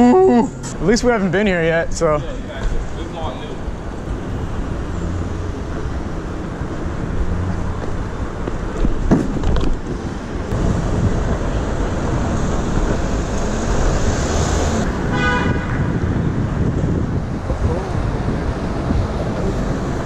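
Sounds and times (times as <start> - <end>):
city traffic: 0.0 - 20.0
wind buffeting microphone: 5.6 - 20.0
car horn toot: 15.1 - 16.0.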